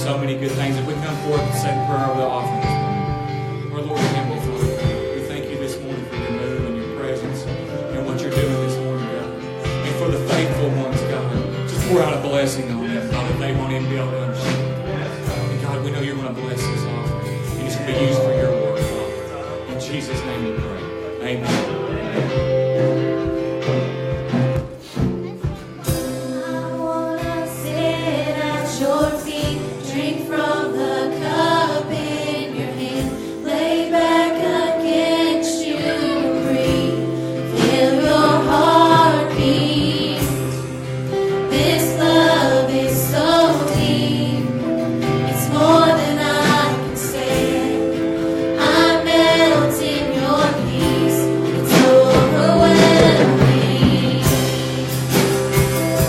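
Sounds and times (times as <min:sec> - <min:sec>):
instrumental accompaniment: 0:00.0 - 0:56.0
voices singing together: 0:25.8 - 0:56.0.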